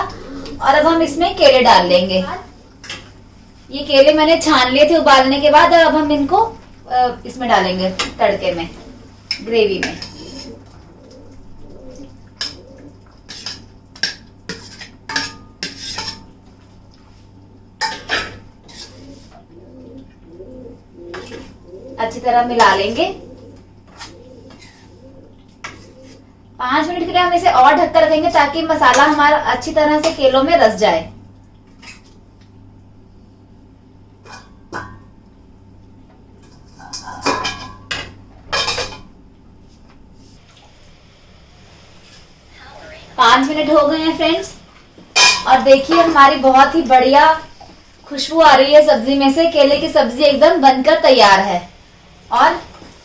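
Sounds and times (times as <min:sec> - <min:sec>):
metal utensils clinking on pan: 0:13.3 - 0:16.3, 0:36.5 - 0:37.9, 0:45.2 - 0:46.2
metal spoon clinking on pan: 0:14.0 - 0:16.3.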